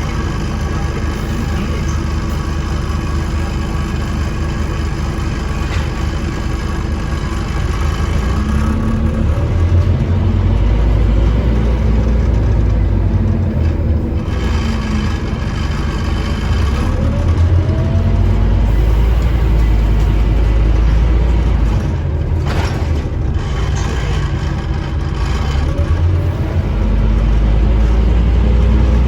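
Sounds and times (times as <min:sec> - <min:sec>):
rising engine whine: 0:00.0 - 0:22.4
bus diesel engine rumble: 0:00.0 - 0:29.0.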